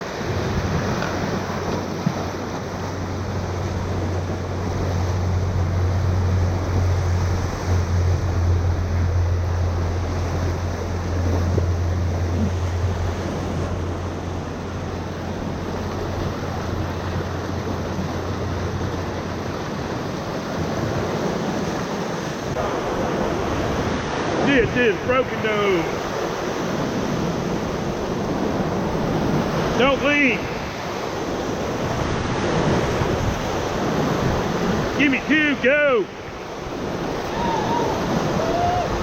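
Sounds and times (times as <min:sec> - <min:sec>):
rushing whitewater: 0:00.0 - 0:39.0
low rumble: 0:03.1 - 0:19.0.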